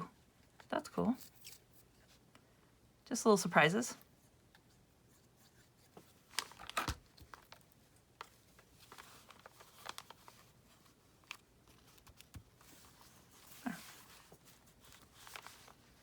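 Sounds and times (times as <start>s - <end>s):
paper rustling and crinkling: 5.4s - 16.0s.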